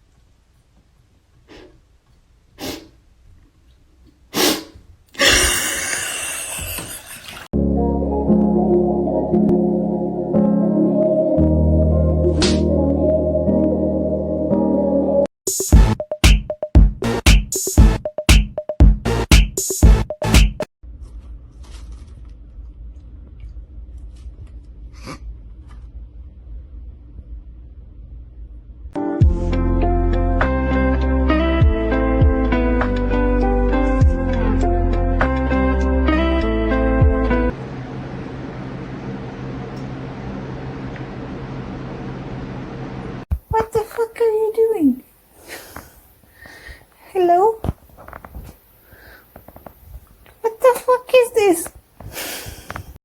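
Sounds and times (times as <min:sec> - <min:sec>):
cat sneezing: 0:02.6 - 0:03.0, 0:04.3 - 0:05.6.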